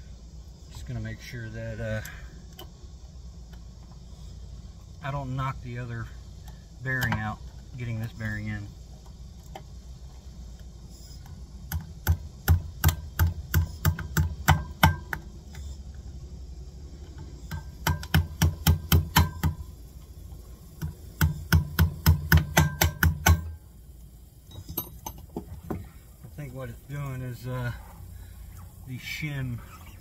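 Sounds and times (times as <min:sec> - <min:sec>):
hammer blows on metal: 0:20.8 - 0:23.6.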